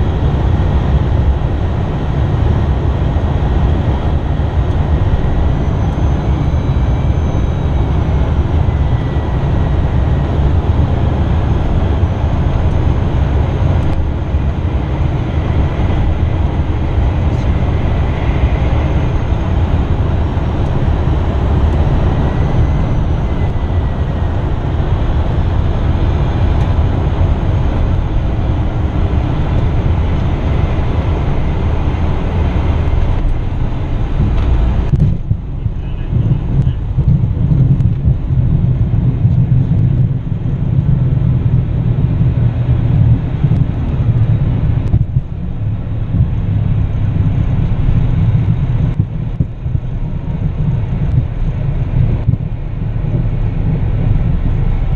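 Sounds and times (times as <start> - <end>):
jet engine and airflow rush: 0.0 - 54.9
faint high whine: 3.7 - 28.3.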